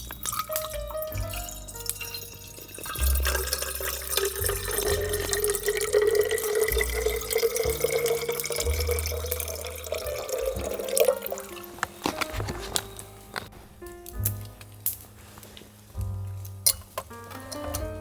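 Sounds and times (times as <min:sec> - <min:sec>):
background music with bass line: 0:00.0 - 0:18.0
liquid pouring into container: 0:01.2 - 0:11.6.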